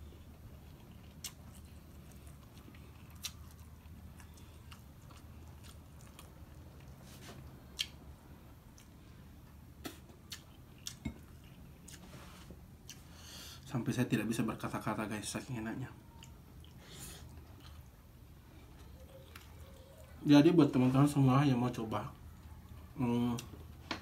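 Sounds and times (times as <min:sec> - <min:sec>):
faint chewing: 0:00.0 - 0:13.7, 0:15.9 - 0:20.2.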